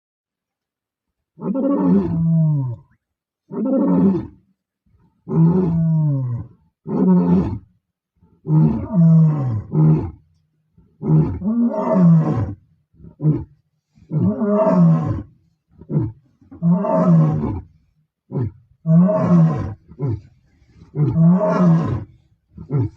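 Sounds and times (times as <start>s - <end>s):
lions roaring: 18.4s - 22.9s.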